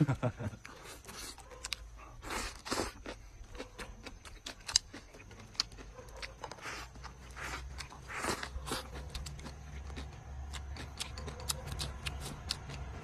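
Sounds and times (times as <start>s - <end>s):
man chewing crunchy food: 0.1s - 13.0s.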